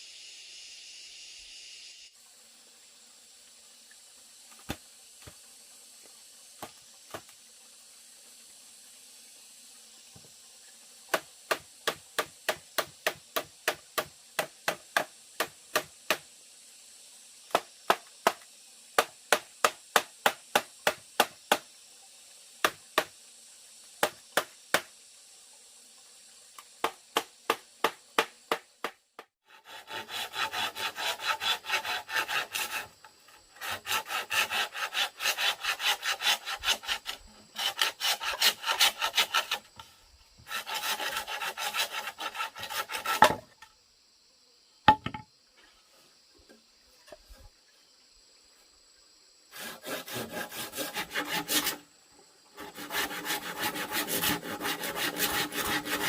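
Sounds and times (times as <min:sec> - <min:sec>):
hand saw cutting wood: 0:11.1 - 0:16.2, 0:26.8 - 0:43.5, 0:49.5 - 0:51.8, 0:52.6 - 0:56.0
sharp knocks on wood: 0:44.9 - 0:45.3.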